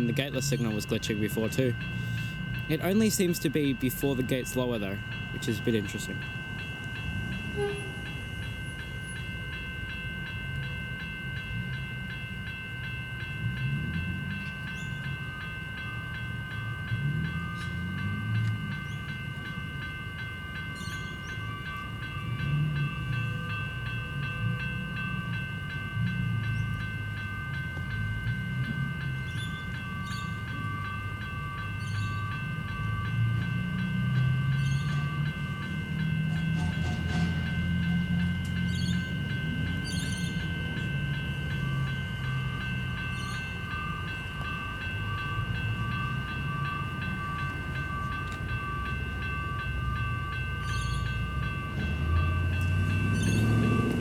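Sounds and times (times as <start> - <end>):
level crossing bells ringing: 0.0 - 54.0
train rumbling: 0.0 - 54.0
train wheels clicking on rails: 17.0 - 54.0.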